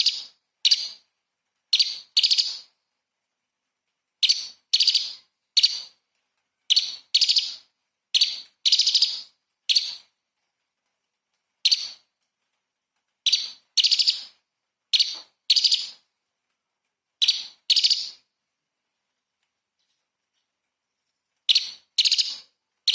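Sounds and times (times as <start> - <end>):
bird singing sharp phrases: 6.7 - 10.0, 13.3 - 14.4, 15.0 - 16.0, 17.2 - 18.2, 21.5 - 22.9.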